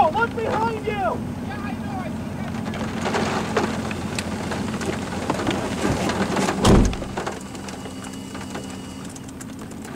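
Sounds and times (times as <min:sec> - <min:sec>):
rain on vehicle roof: 0:02.4 - 0:09.9
low thump: 0:06.6 - 0:07.2.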